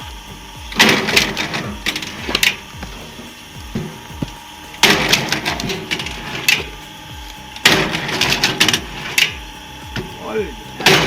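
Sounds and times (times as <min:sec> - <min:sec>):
log splitter striking wood: 0:00.0 - 0:11.0
wood crackling: 0:00.0 - 0:11.0.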